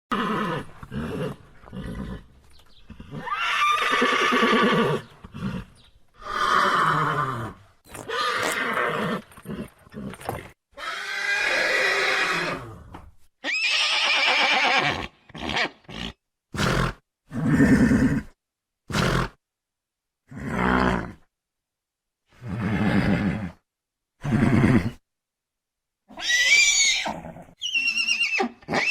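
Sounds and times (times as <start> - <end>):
horse neighing: 2.9 - 12.8, 13.4 - 18.2, 26.1 - 28.9.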